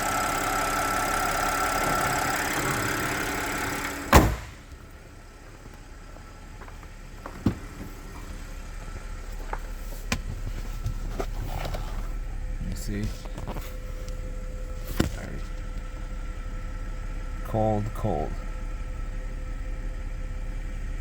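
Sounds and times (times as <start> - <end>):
car engine idling: 0.0 - 21.0
loud thump: 4.1 - 4.8.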